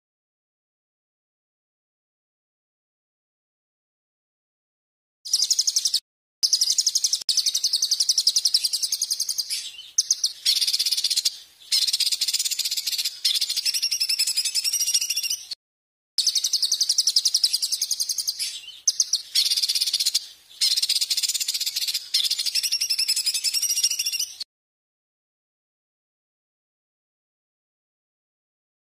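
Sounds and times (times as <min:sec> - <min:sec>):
songbird singing rattling trills: 0:05.3 - 0:15.6, 0:16.2 - 0:24.4.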